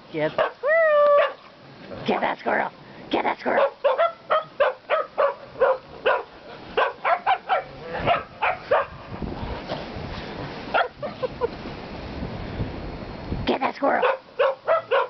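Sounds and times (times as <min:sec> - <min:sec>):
dogs barking: 0:00.4 - 0:01.4, 0:03.5 - 0:09.0, 0:10.7 - 0:11.3, 0:14.0 - 0:15.0
wind rumble on microphone: 0:05.2 - 0:15.0.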